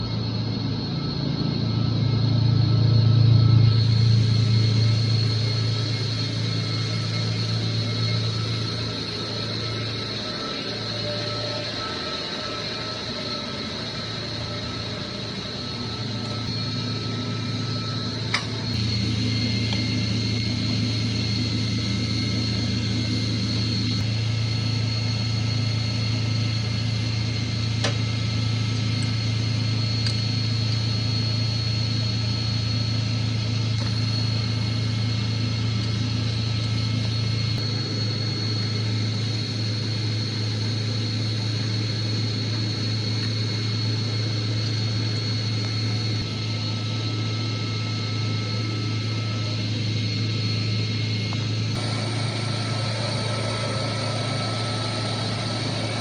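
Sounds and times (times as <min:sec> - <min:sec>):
chiller low hum: 0:00.0 - 0:56.0
high-pitched whine tones: 0:00.0 - 0:56.0.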